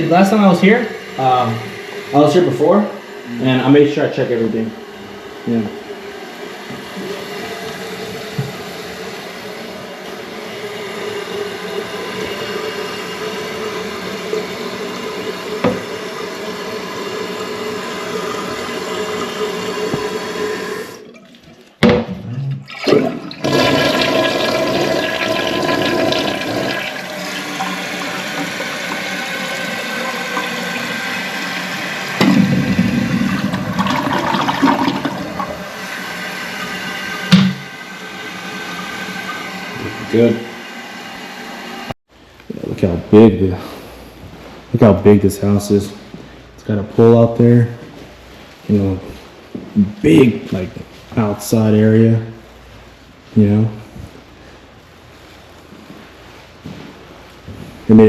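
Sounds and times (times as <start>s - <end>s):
toilet refilling and flushing: 0.0s - 21.9s, 22.5s - 42.0s.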